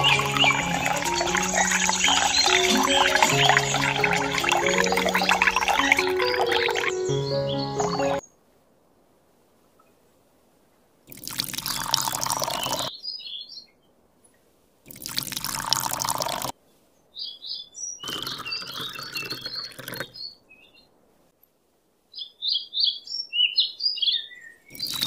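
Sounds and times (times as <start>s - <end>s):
water pouring onto sand: 0.0s - 7.0s, 11.1s - 12.9s, 14.9s - 16.5s
bird chirps: 0.0s - 8.4s, 11.7s - 13.9s, 17.1s - 20.9s, 22.2s - 25.0s.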